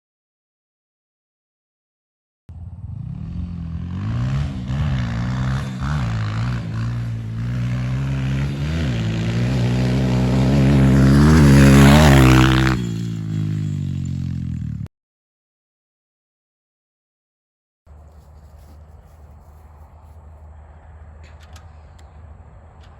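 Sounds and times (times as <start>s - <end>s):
dirt bike engine revving: 2.6s - 14.9s.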